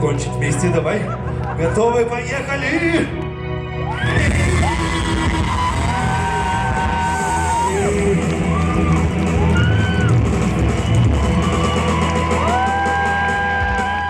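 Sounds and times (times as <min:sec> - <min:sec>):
live pop-rock band music: 0:00.0 - 0:14.0
voices singing long notes: 0:03.9 - 0:09.8.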